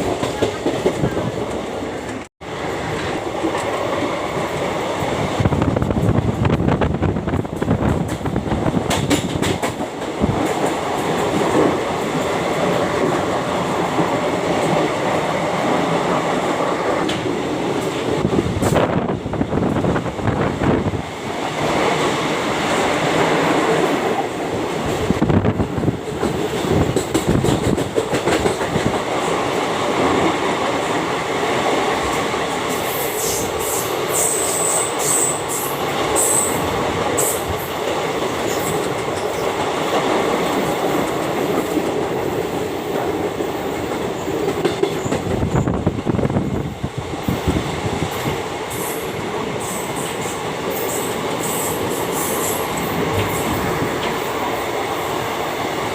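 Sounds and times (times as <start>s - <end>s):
train rumbling on rails: 0.0s - 55.9s
wheels clacking over rail joints: 7.4s - 14.9s, 26.0s - 30.8s.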